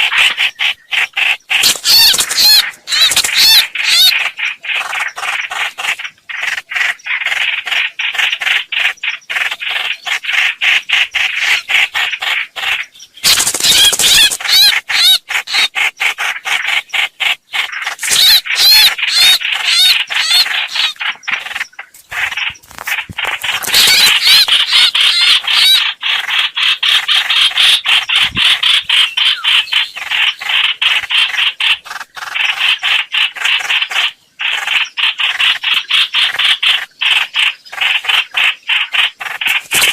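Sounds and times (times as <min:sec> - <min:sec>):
bird harsh repeated notes: 0:00.0 - 0:39.9
bird wavering call phrases: 0:01.4 - 0:04.2.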